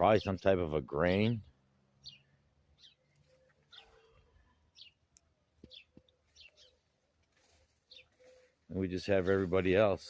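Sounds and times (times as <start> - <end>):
faint high bird chirps: 2.0 - 8.7.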